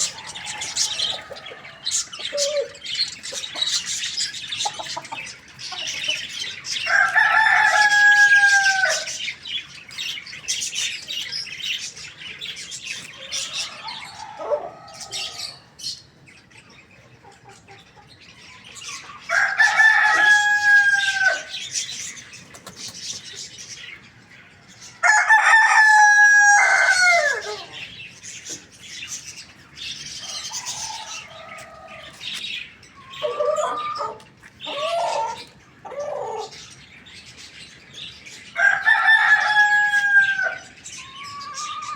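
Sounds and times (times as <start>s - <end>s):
rooster crowing: 0.0s - 2.8s, 6.8s - 9.2s, 13.4s - 15.6s, 19.3s - 21.6s, 25.0s - 27.8s, 38.6s - 41.9s
clucks and chirps: 0.0s - 41.9s.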